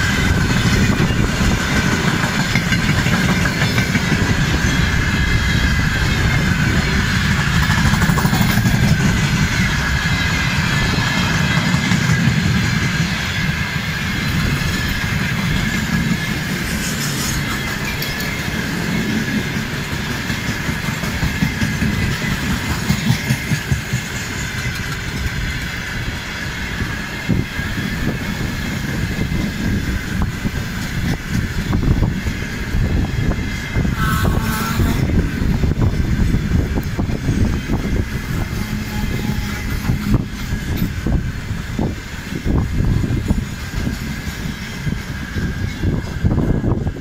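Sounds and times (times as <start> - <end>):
wheels clattering over rail joints: 0.0 - 33.9
freight train rumbling past: 0.0 - 47.0
train wheel squeal: 0.0 - 47.0.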